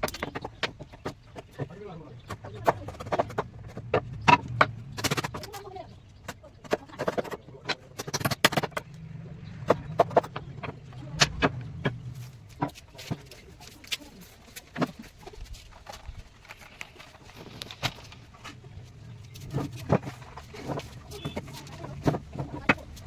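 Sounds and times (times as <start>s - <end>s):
sharp knocks and taps: 0.0s - 9.0s
low hum: 8.7s - 12.6s.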